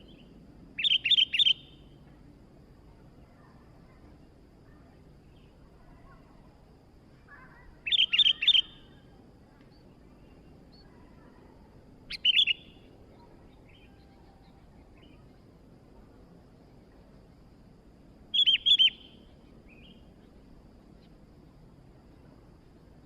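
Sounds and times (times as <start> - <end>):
bulbul calling: 0.8 - 1.8, 7.3 - 9.0, 12.1 - 14.0, 18.3 - 20.0.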